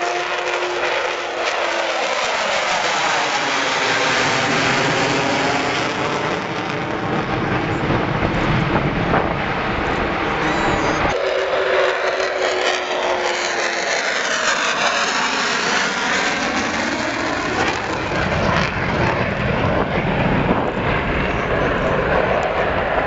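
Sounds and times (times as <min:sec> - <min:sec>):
jet aircraft flypast: 0:00.0 - 0:23.0
deep rumble: 0:04.4 - 0:11.2, 0:17.5 - 0:23.0.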